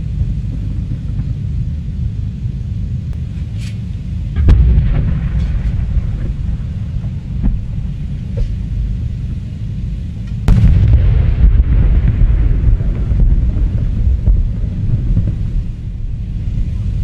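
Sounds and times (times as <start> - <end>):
fireworks bursts rumbling: 0.0 - 17.0
loud firework burst: 4.3 - 8.8, 10.5 - 17.0
fireworks crackles: 10.4 - 17.0.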